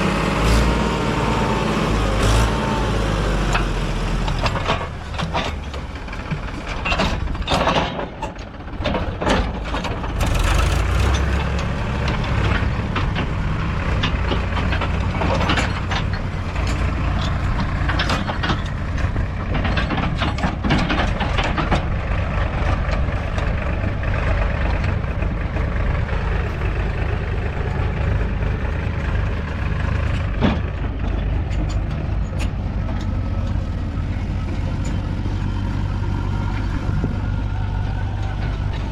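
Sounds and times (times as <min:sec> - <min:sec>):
heavy diesel engine running: 0:00.0 - 0:38.9
sharp knocks and clatters: 0:04.3 - 0:33.7.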